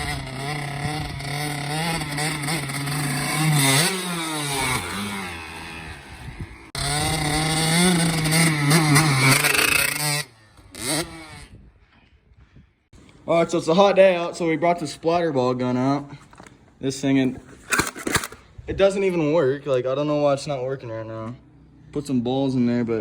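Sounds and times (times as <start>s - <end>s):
dirt bike engine revving: 0.0s - 11.8s.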